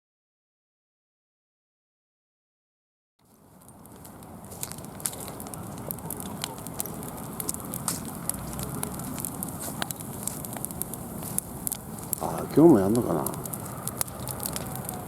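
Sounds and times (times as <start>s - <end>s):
bonfire crackling and popping: 3.2s - 15.0s
low hiss of burning: 3.2s - 15.0s.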